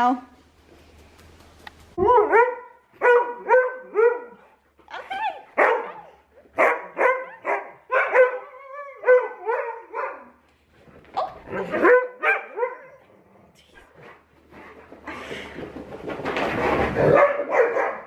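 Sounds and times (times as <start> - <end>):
husky barking and yipping: 2.0 - 10.4, 11.4 - 13.0, 17.0 - 18.0.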